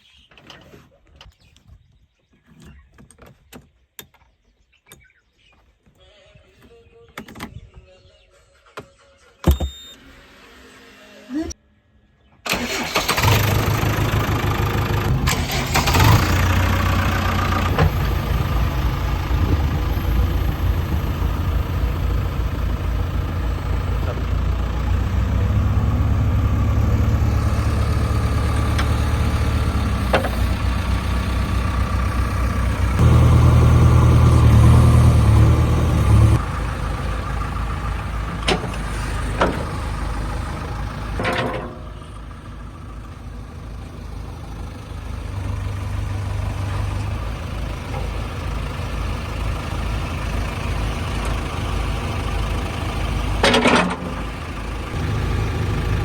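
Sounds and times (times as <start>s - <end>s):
diesel engine revving: 12.5s - 56.0s.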